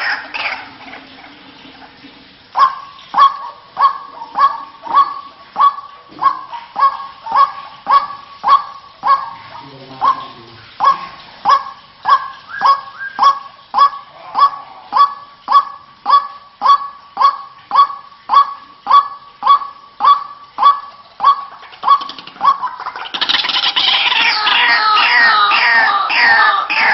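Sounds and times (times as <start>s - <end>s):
waterhen calls: 0.0s - 26.9s.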